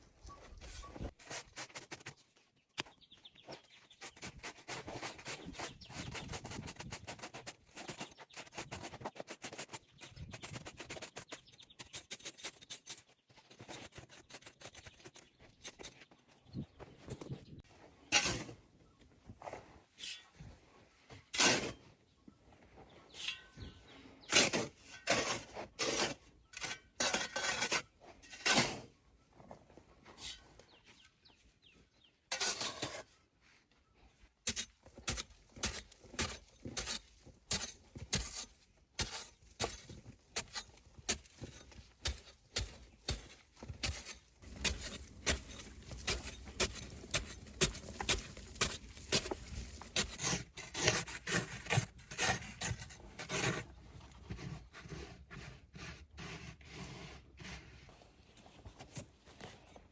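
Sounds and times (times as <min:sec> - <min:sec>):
hand tool knocks and scrapes: 0:34.4 - 0:53.7.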